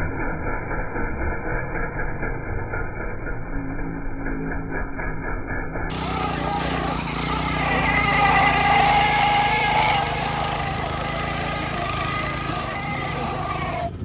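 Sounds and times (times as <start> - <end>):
small engine whining at high revs: 5.9 - 14.0.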